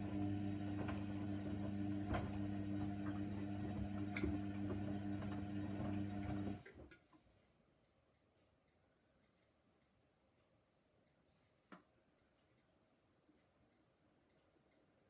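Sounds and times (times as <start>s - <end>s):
washing machine humming: 0.0s - 6.9s.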